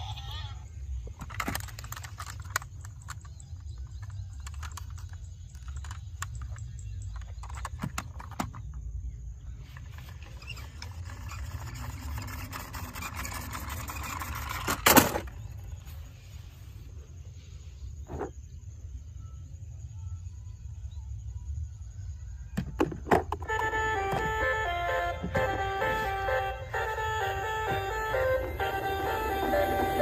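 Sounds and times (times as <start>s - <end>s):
toy cars clicking and clattering: 1.1s - 8.7s, 9.8s - 15.3s.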